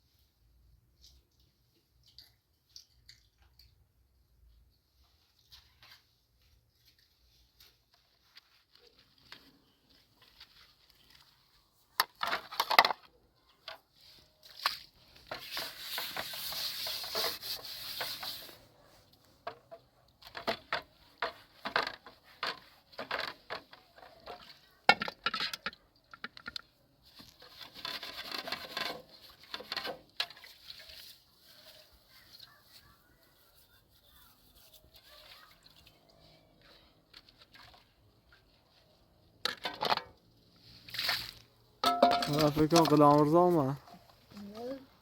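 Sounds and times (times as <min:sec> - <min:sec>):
rubbing or scraping noise: 0:14.0 - 0:24.4, 0:27.0 - 0:35.6
kitchen items knocking and clinking: 0:41.8 - 0:43.2.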